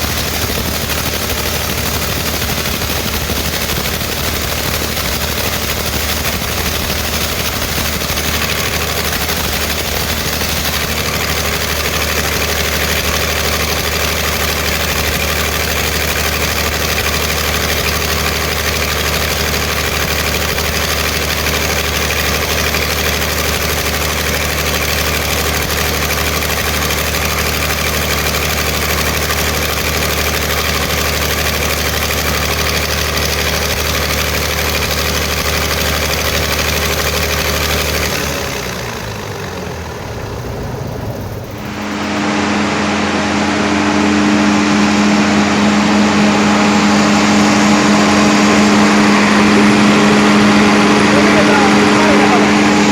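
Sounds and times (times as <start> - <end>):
diesel generator engine running: 0.0 - 52.9.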